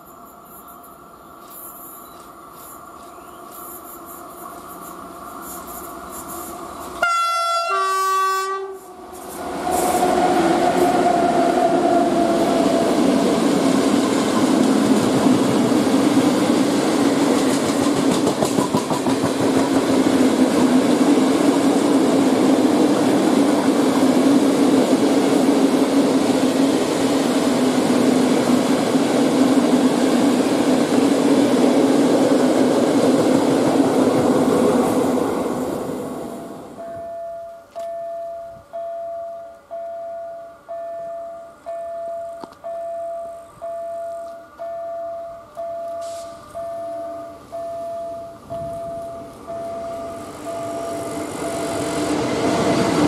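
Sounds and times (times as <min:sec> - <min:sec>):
two-note train horn: 0:07.0 - 0:09.0
wagons rolling on rails: 0:12.2 - 0:24.3
clattering over rail joints: 0:17.2 - 0:20.0.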